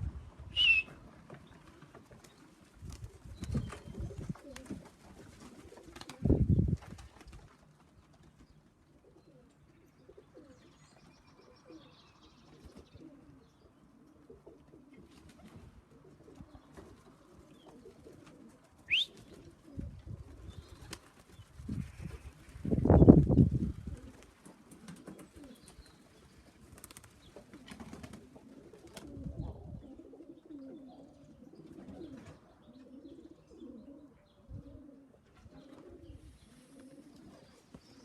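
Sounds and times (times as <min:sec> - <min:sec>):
short high rising bird call: 0:00.5 - 0:00.9
pigeons cooing: 0:00.6 - 0:06.6, 0:08.9 - 0:38.0.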